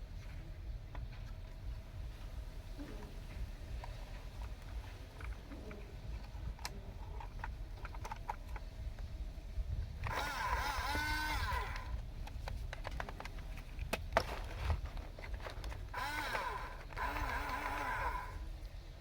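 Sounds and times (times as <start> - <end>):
toy motors whining: 10.0 - 12.0, 15.1 - 18.5
sharp clicks: 15.3 - 18.5.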